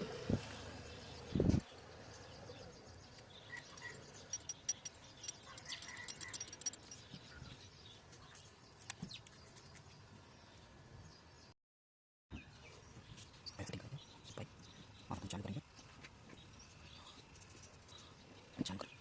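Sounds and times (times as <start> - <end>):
birds chirping: 0.5 - 11.5
tools and parts clinking: 3.5 - 7.5.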